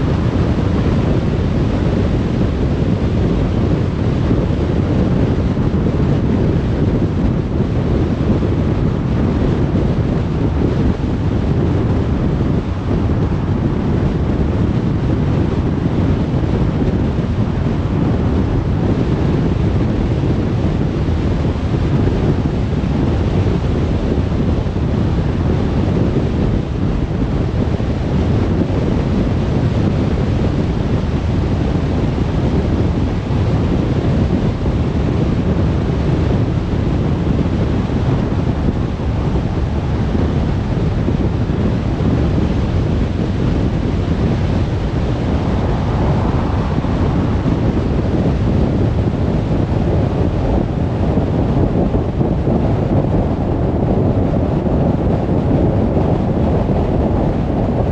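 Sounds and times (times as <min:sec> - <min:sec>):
car road and wind noise: 0:00.0 - 0:57.9.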